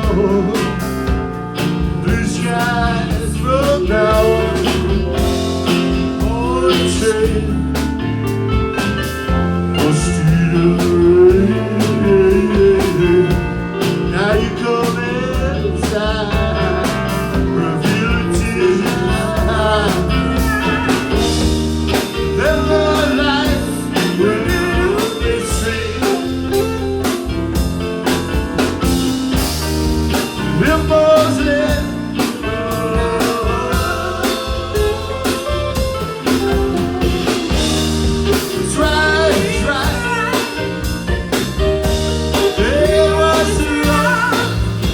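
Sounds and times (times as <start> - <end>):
band playing blues song: 0.0 - 44.9
bass: 0.0 - 44.9
drum beat: 0.0 - 44.9
guitar: 0.0 - 44.9.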